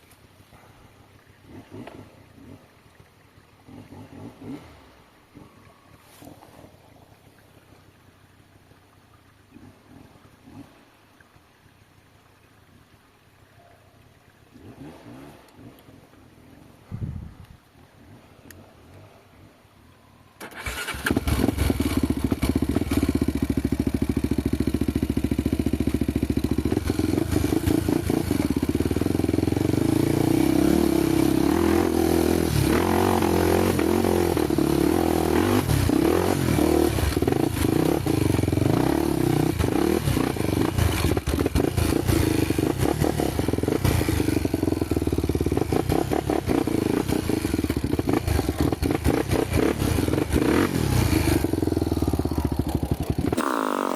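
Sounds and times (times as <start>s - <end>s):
motorcycle engine revving: 1.4s - 2.8s, 3.6s - 5.6s, 14.6s - 16.0s, 20.4s - 53.9s.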